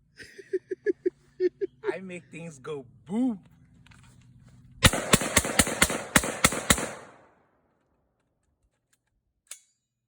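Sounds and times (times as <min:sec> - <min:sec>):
rifle shots with ringing echo: 0:04.8 - 0:07.6.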